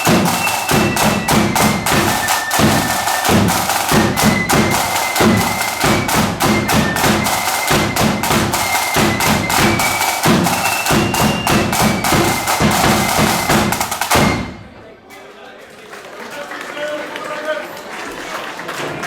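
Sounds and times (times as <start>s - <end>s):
bass drum beats: 0.0s - 14.6s
snare drum strokes: 0.0s - 14.8s
marching band playing: 0.0s - 14.9s.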